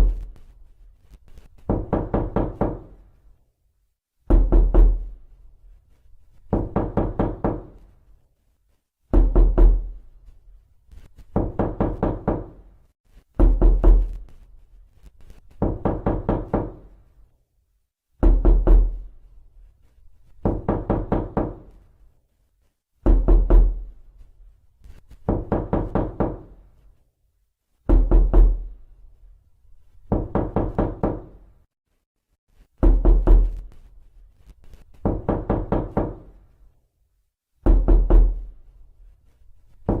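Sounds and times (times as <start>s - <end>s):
knocking on a door: 1.7s - 3.0s, 4.3s - 5.2s, 6.5s - 7.8s, 9.1s - 10.0s, 11.3s - 12.7s, 13.4s - 14.2s, 15.6s - 16.9s, 18.2s - 19.1s, 20.4s - 21.8s, 23.0s - 23.9s, 25.2s - 26.6s, 27.9s - 28.7s, 30.1s - 31.4s, 32.8s - 33.6s, 35.0s - 36.4s, 37.6s - 38.5s.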